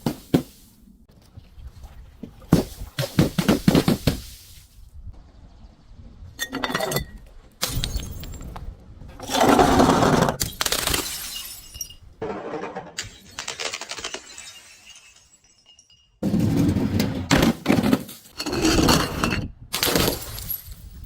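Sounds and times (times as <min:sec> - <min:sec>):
glass bottles shattering: 0:06.4 - 0:08.5, 0:10.4 - 0:21.0.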